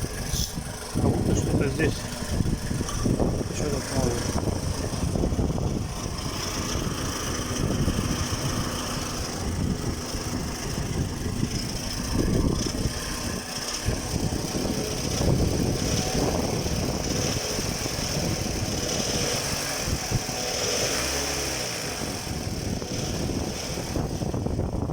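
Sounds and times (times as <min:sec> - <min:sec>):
car engine running with a rattle: 0:00.0 - 0:24.9.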